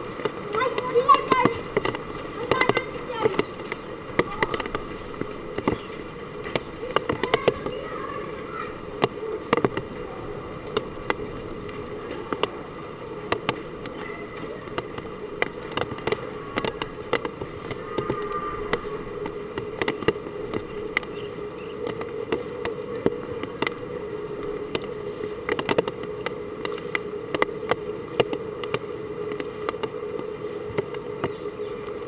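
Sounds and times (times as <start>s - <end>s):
heavy rain: 0.0s - 21.0s
raindrops tapping hard surface: 0.0s - 32.0s.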